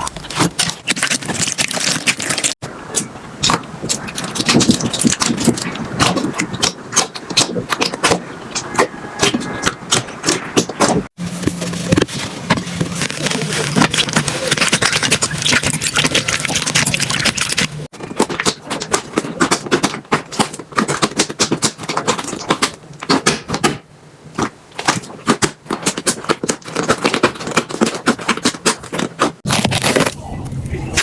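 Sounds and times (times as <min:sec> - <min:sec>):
slime crackling and popping: 0:00.0 - 0:08.2, 0:12.9 - 0:23.8.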